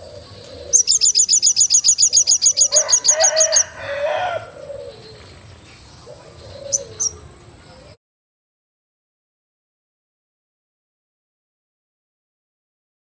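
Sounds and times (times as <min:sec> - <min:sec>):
lower fuller bird call: 0:00.0 - 0:05.4
soft low cooing calls: 0:00.0 - 0:08.0.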